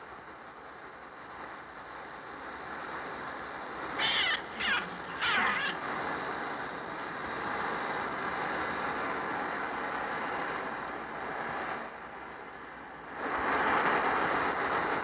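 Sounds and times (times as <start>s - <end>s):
steady rushing noise: 0.0s - 15.0s
shrill bird shrieks: 4.0s - 5.8s.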